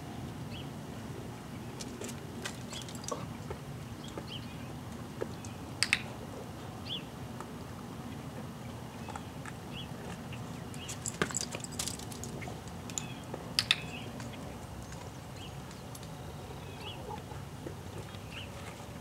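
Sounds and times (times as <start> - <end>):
sharp clicks: 5.4 - 6.1, 12.9 - 14.3
bird chirping: 12.4 - 17.3.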